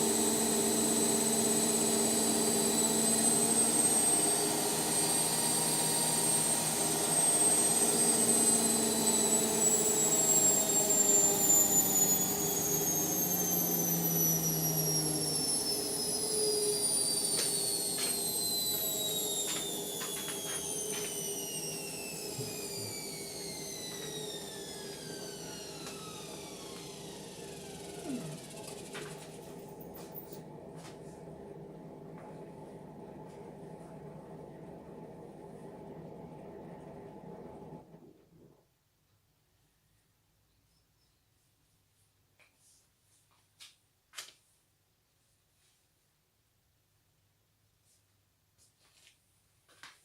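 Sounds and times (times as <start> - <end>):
washing machine drum spinning down: 0.0 - 29.5.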